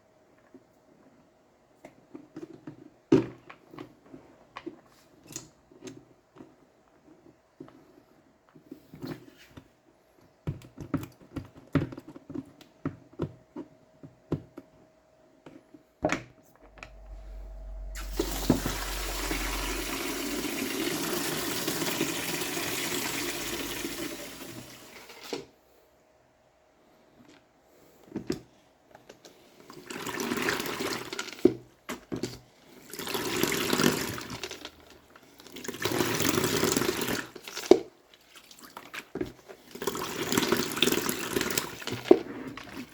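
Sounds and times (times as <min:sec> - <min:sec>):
water running: 0:16.9 - 0:25.4, 0:32.8 - 0:34.9.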